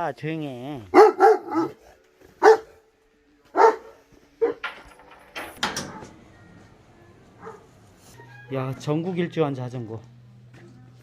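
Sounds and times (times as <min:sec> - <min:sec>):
dog barking: 0:00.9 - 0:02.8, 0:03.5 - 0:04.6, 0:07.4 - 0:07.7.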